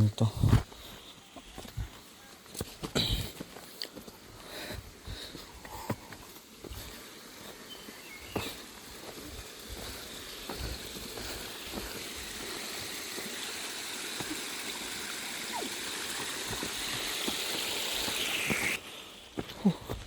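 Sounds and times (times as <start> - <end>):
water rushing in a stream: 7.6 - 19.4.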